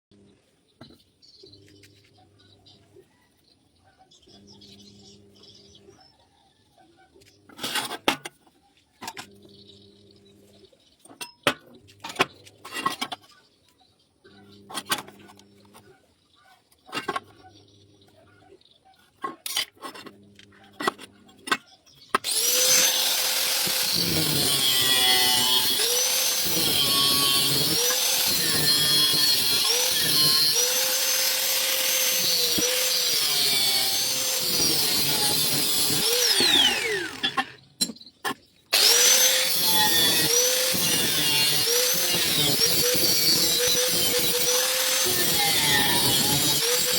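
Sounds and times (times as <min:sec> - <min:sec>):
angle grinder cutting steel pipe: 0:22.2 - 0:37.6, 0:38.7 - 0:46.9.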